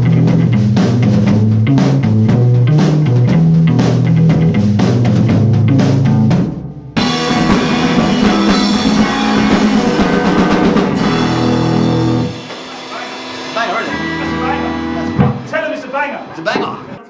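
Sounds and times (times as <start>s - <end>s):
drums hitting steady beat: 0.0s - 17.0s
rock band playing: 0.0s - 17.0s.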